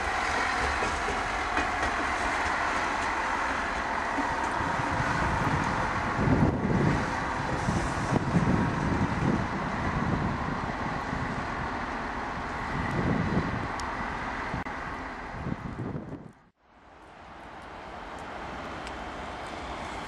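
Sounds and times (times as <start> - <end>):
train rumbling past: 0.0 - 20.0
wind thumping on microphone: 4.2 - 11.6, 12.6 - 13.8, 15.3 - 16.5.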